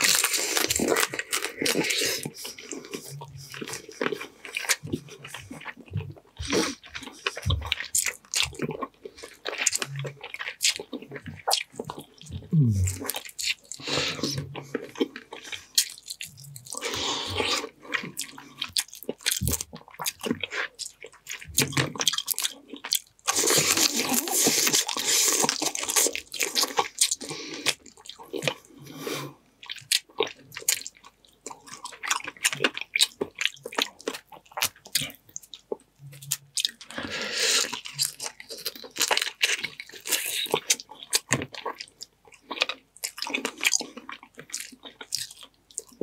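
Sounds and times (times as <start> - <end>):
wet squishy mouth sounds: 6.4 - 28.6.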